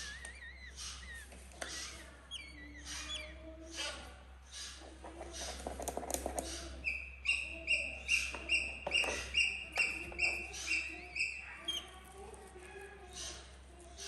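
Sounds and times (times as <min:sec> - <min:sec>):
baby eagle piping peeps: 0:00.0 - 0:05.8, 0:06.4 - 0:12.1
rustling with clicks: 0:04.8 - 0:06.7.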